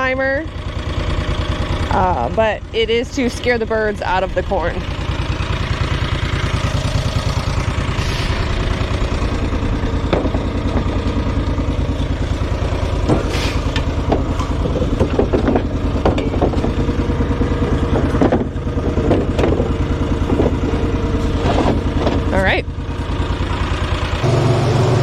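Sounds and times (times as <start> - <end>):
vehicle engine rumbling: 0.0 - 25.0
clattering and knocks: 7.4 - 22.5.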